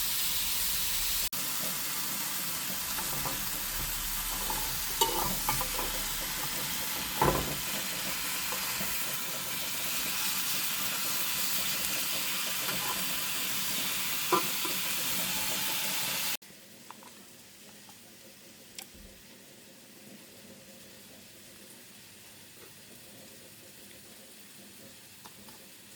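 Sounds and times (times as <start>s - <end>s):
chicken sizzling in a pan: 0.0s - 25.9s
utensil knocking against pan: 4.4s - 7.8s.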